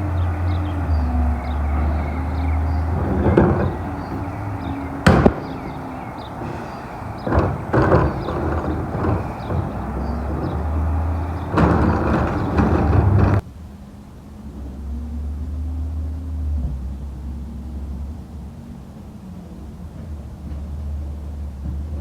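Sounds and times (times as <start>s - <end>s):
dull thumps: 0.0s - 13.4s
garbage truck diesel engine running: 0.0s - 13.4s
sharp loud bang: 0.0s - 13.4s.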